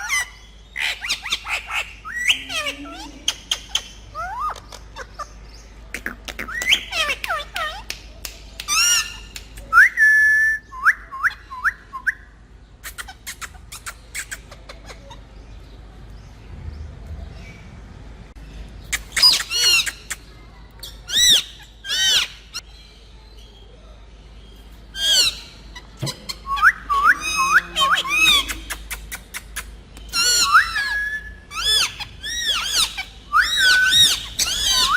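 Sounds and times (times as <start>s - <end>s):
parrot harsh calls: 0.0s - 5.4s, 6.0s - 7.8s, 19.0s - 20.1s, 21.0s - 22.6s, 24.9s - 28.7s, 30.1s - 34.9s
parrot whistling: 26.4s - 28.5s, 30.2s - 34.9s.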